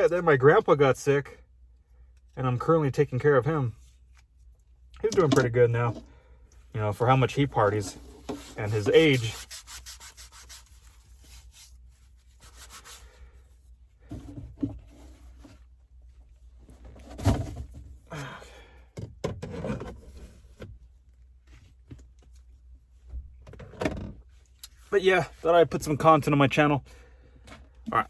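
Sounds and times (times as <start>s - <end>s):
cooking gear rubbing and scraping: 6.9s - 13.2s.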